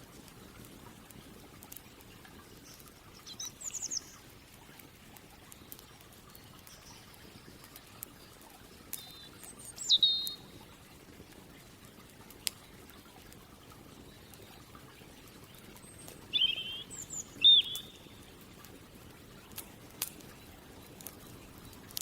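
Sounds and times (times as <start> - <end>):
faint campfire hiss: 0.0 - 22.0
sharp fire crackle: 0.0 - 22.0
songbirds chirping: 0.0 - 22.0.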